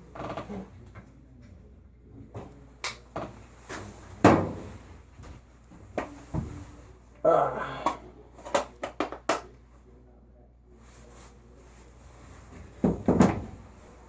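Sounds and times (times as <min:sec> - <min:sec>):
hard objects knocking and clattering: 0:12.8 - 0:13.6.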